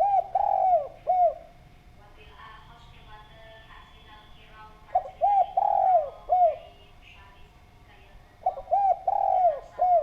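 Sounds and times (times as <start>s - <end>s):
dove cooing: 0.0s - 1.6s, 4.9s - 6.8s, 8.4s - 10.0s.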